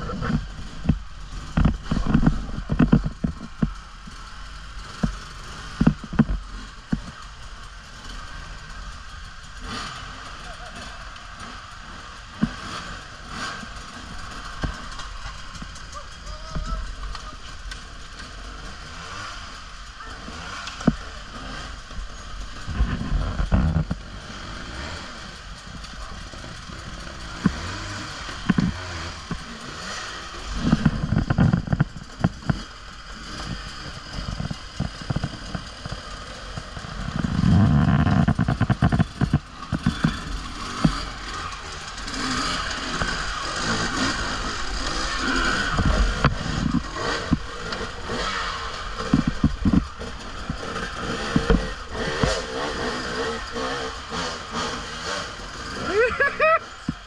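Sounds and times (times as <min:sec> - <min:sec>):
knocks and clatter from bumps: 0:00.0 - 0:07.3, 0:20.7 - 0:24.2, 0:25.8 - 0:55.1
motorbike motor whine: 0:00.0 - 0:57.0.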